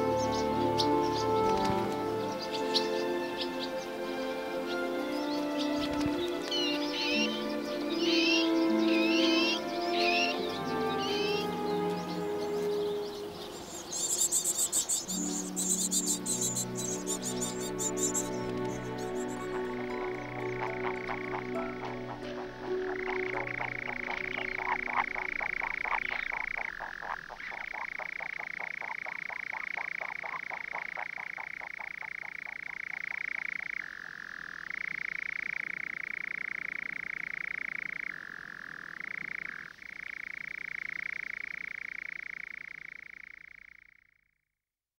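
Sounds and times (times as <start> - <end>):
music: 0.0 - 13.7, 15.1 - 26.7
trilling animal call: 6.5 - 34.5.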